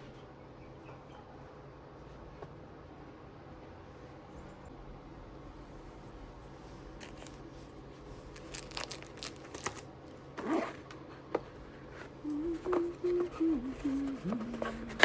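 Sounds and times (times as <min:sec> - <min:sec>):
packaging tearing and crinkling: 0:07.0 - 0:07.4, 0:08.3 - 0:09.9
low hum-like tone: 0:11.6 - 0:15.0.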